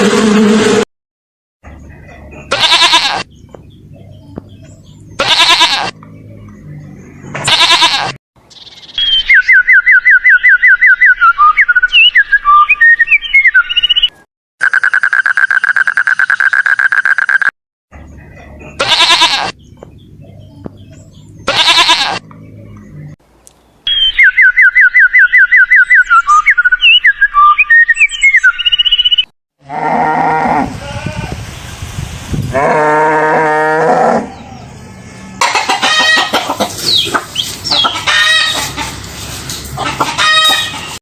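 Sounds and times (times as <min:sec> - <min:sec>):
animal bleats: 0:02.5 - 0:03.3, 0:05.2 - 0:06.0, 0:07.4 - 0:08.2, 0:18.8 - 0:19.6, 0:21.5 - 0:22.2.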